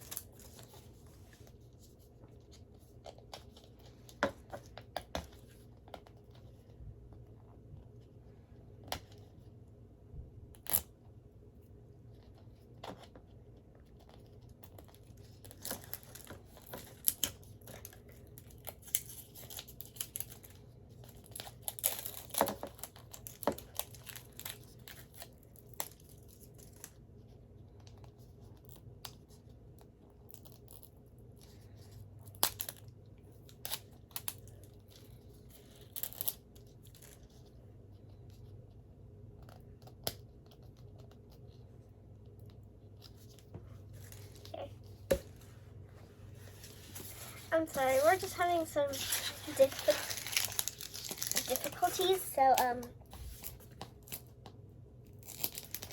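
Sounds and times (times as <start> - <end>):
packaging rustling and tearing: 46.4 - 54.3, 55.1 - 55.9.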